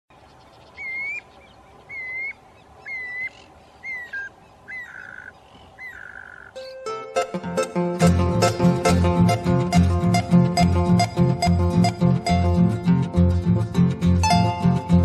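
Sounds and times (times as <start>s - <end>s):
bird whistling calls: 0.5s - 6.6s.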